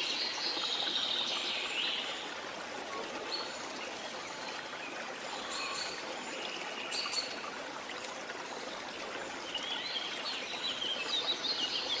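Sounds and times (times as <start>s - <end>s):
waterfall water running: 0.0s - 12.0s.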